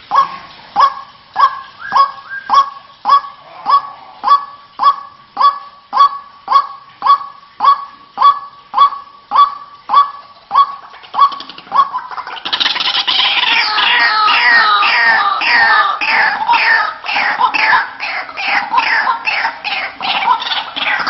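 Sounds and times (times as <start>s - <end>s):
waterhen calling short notes: 0.0s - 21.0s.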